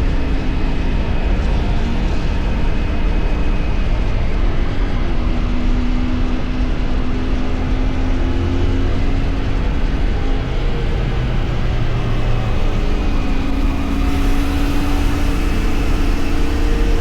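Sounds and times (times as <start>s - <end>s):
motorcycle engine running: 8.9s - 17.0s.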